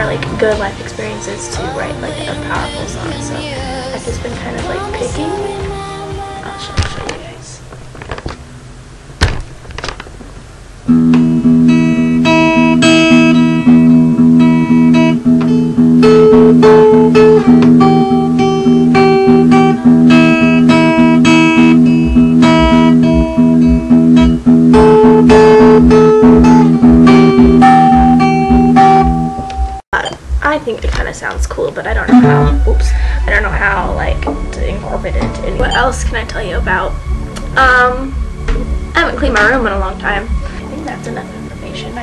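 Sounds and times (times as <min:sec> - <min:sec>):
acoustic guitar fingerpicked: 0:10.9 - 0:29.8, 0:32.0 - 0:41.2.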